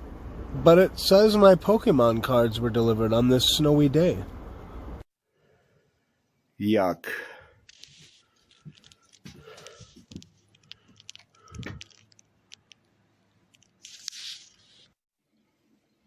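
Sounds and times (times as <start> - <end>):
handling clicks and rustles: 7.7 - 15.0.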